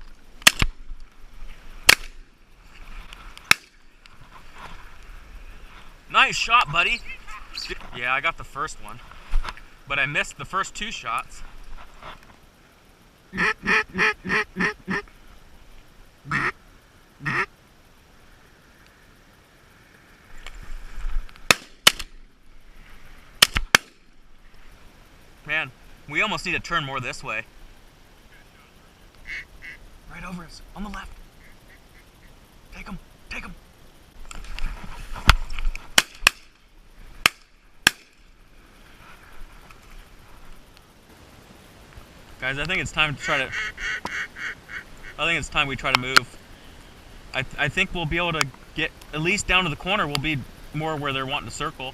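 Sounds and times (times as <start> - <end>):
shotgun shots: 0.4 - 0.7, 1.9 - 2.2, 21.5 - 22.1, 23.4 - 24.0, 37.2 - 38.2
duck quacking: 13.3 - 15.0, 16.3 - 16.6, 17.2 - 17.5, 28.3 - 29.8, 31.4 - 32.4, 43.2 - 45.2.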